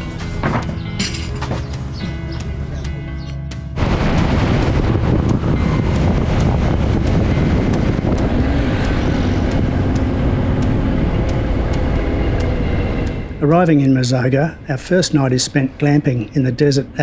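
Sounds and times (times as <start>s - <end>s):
motorcycle engine: 0.0s - 13.5s
wind on microphone: 3.8s - 13.6s.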